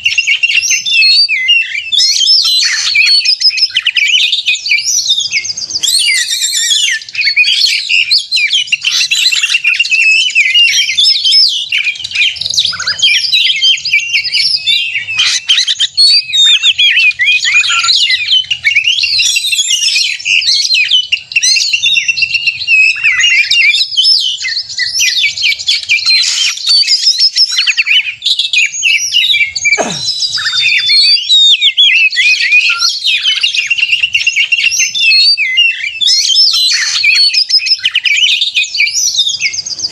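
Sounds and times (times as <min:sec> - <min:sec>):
birds singing rapid whistles and trills: 0:00.0 - 0:39.9.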